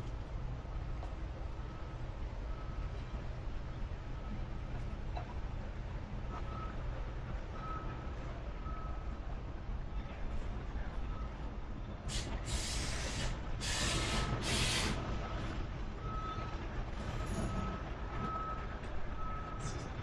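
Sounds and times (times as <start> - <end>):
hisses of rushing air: 12.1 - 15.1.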